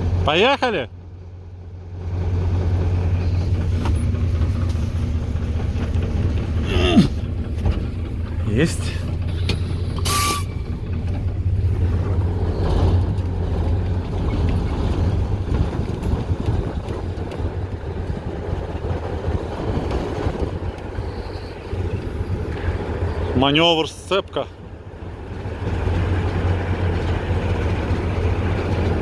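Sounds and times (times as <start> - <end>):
diesel locomotive engine running: 0.0 - 29.0
sharp hissing noise: 9.4 - 10.7.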